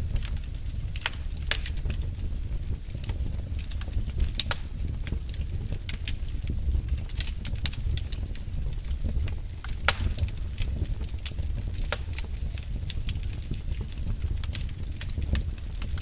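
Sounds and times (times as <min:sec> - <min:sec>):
wood fire crackling: 0:00.0 - 0:16.0
sharp pop of fire: 0:09.8 - 0:10.4.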